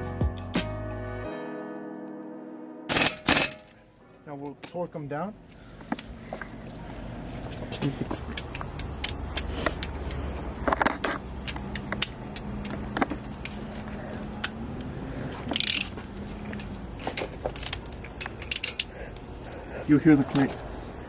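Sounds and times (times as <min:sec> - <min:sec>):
wrench clicking on lug nuts: 0:15.5 - 0:16.0, 0:17.5 - 0:18.9.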